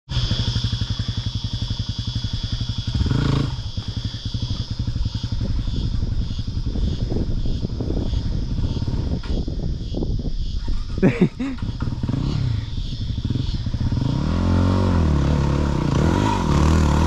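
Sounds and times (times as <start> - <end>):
motorcycle engine revving: 0.1 - 17.0.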